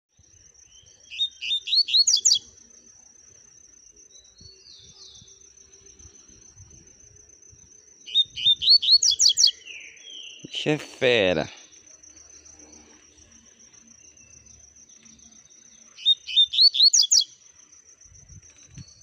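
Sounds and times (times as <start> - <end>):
bird singing whistled notes: 0.2 - 2.8, 4.0 - 10.5, 14.0 - 17.5, 18.1 - 19.0.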